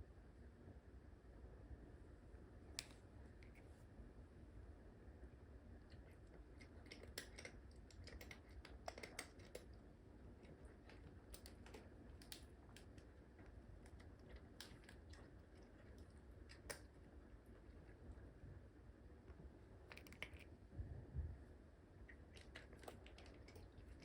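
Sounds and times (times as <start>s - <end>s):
faint irregular clicks: 5.8s - 9.8s, 10.4s - 17.0s.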